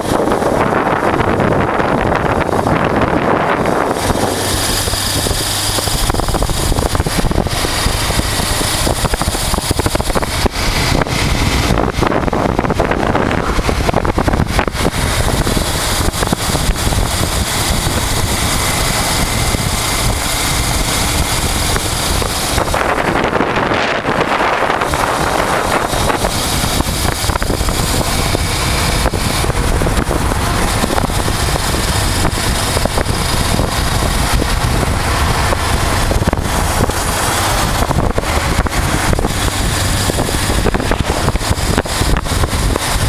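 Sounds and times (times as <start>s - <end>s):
motorcycle engine running: 0.0s - 43.0s
wind buffeting microphone: 0.0s - 43.0s.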